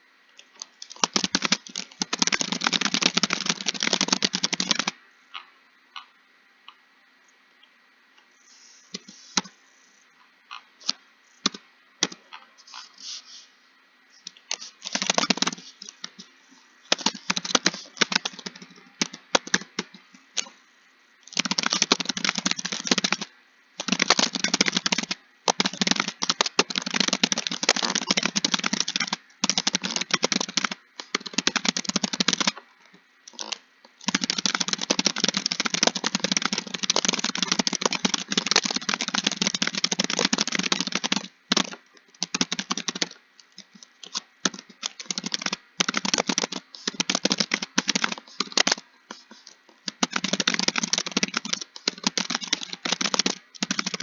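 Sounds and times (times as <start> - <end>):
typing on computer keyboard: 0.6 - 5.0, 14.3 - 16.2, 16.9 - 20.5, 21.2 - 32.6, 33.3 - 54.0.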